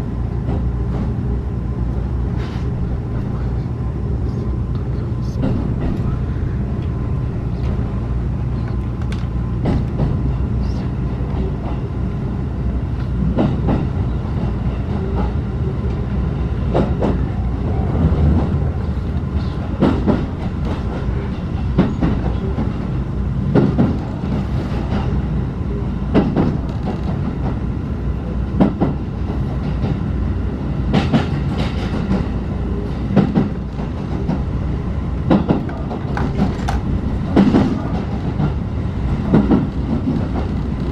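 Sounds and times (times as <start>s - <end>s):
train coach rumbling: 0.0s - 40.9s
wheels clacking over rail joints: 35.2s - 40.9s.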